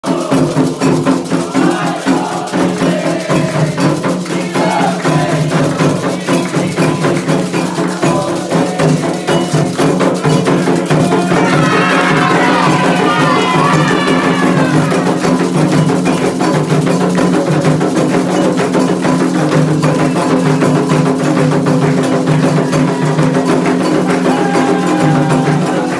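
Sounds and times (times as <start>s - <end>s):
bell playing rhythm: 0.0s - 25.9s
hand drums playing fast rhythm: 0.0s - 25.9s.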